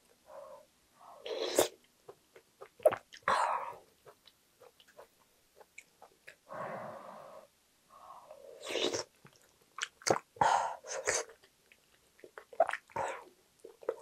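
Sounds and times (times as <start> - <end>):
wet chewing with mouth clicks: 9.2 - 10.3, 11.0 - 13.0.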